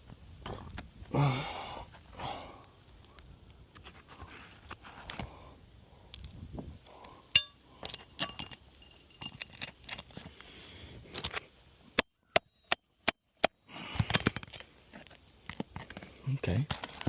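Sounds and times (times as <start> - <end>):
light metallic clinks: 7.3 - 9.8.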